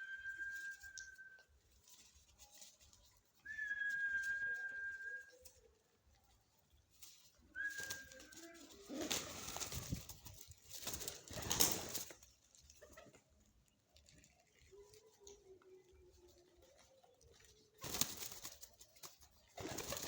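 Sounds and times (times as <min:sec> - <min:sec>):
high whistle: 0:03.5 - 0:05.4
rustling flurries: 0:07.0 - 0:13.4, 0:16.7 - 0:20.0
pigeons cooing: 0:08.2 - 0:10.0.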